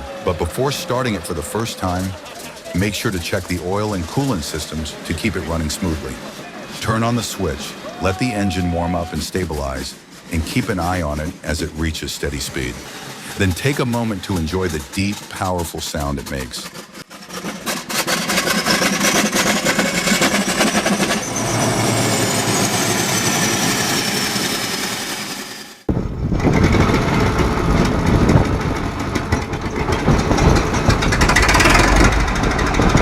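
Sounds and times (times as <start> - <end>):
heavy engine clattering rumble: 9.6 - 22.0, 25.9 - 33.0
old engine running with whine: 16.6 - 33.0.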